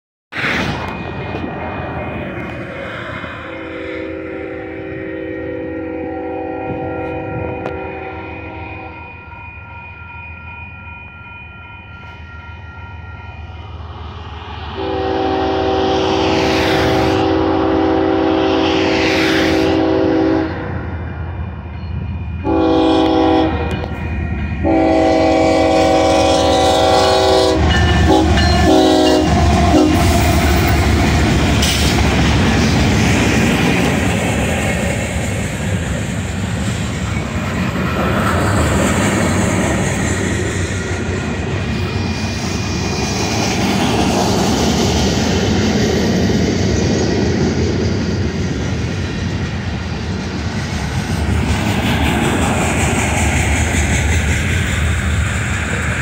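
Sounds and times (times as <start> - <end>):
locomotive air horn blasts: 3.4 - 9.0, 14.8 - 20.8, 22.4 - 24.0, 24.6 - 30.4
freight cars rumbling and clattering: 27.7 - 56.0.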